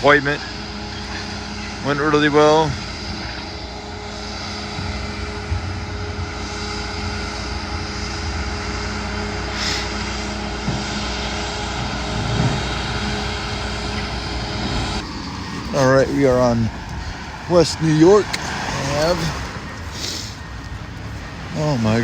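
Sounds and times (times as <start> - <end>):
steady engine hum: 0.0 - 22.0
wind rumbling on microphone: 0.0 - 22.0.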